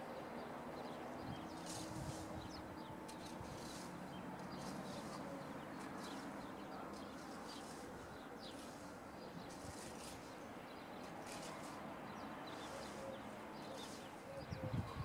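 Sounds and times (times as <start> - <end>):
faint outdoor background noise: 0.0 - 15.0
birds chirping and calling: 0.8 - 15.0.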